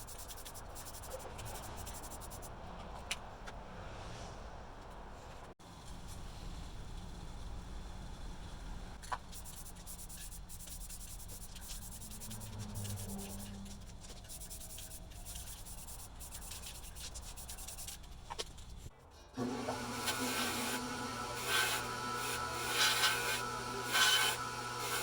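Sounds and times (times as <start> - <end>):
scratchy rubbing strokes: 0.0 - 2.5, 9.3 - 18.9, 19.8 - 25.0.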